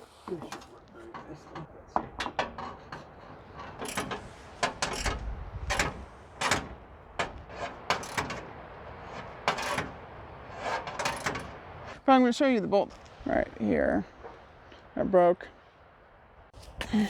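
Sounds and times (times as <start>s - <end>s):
hand tools clicking on metal bolts: 0.0s - 12.0s
metal scraping: 0.0s - 12.0s.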